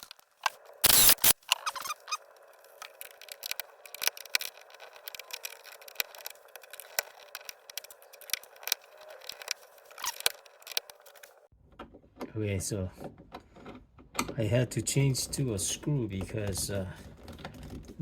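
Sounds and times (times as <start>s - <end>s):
small clicks and light scraping: 0.0s - 12.3s
screwdriver turning a screw: 0.8s - 11.2s.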